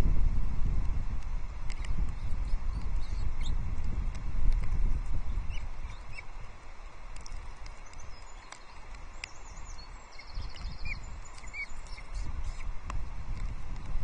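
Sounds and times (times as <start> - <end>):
wind buffeting microphone: 0.0 - 14.0
faint high bird chirps: 1.7 - 3.6, 7.4 - 12.7.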